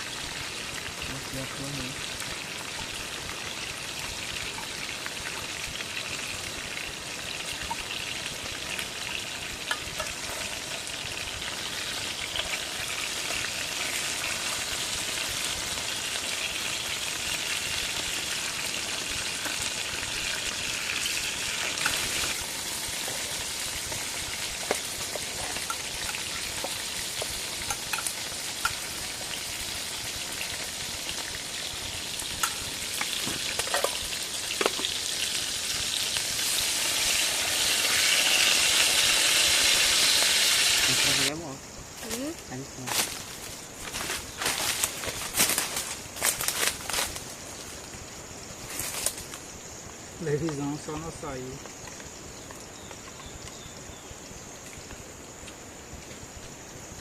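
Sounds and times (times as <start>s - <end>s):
chicken sizzling in a pan: 0.0s - 42.4s.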